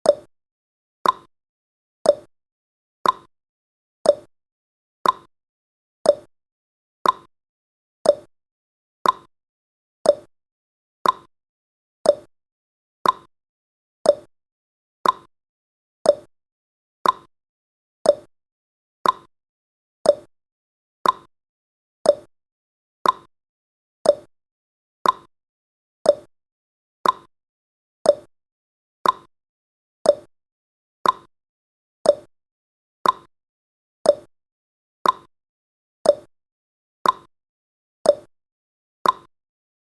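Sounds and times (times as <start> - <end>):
clock-like timer ticking: 1.0 - 1.3, 2.1 - 2.3, 3.0 - 3.3, 4.1 - 4.3, 5.0 - 5.3, 6.1 - 6.3, 7.0 - 7.3, 8.0 - 8.3, 9.0 - 9.3, 10.0 - 10.3, 11.0 - 11.3, 12.0 - 12.3, 13.0 - 13.3, 14.0 - 14.3, 15.0 - 15.3, 16.0 - 16.3, 17.0 - 17.3, 18.0 - 18.3, 19.0 - 19.3, 20.0 - 20.3, 21.0 - 21.3, 22.0 - 22.3, 23.0 - 23.3, 24.0 - 24.3, 25.0 - 25.3, 26.0 - 26.3, 27.0 - 27.3, 28.0 - 28.3, 29.0 - 29.3, 30.0 - 30.3, 31.0 - 31.3, 32.0 - 32.3, 33.0 - 33.3, 34.0 - 34.3, 35.0 - 35.3, 36.0 - 36.3, 37.0 - 37.3, 38.1 - 38.3, 39.0 - 39.3.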